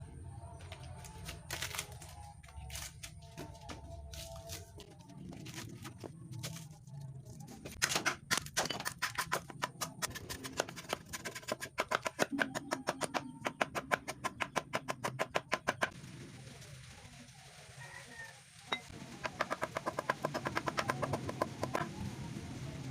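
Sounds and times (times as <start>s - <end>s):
rapid strikes on metal: 7.8s - 16.0s, 18.8s - 21.9s.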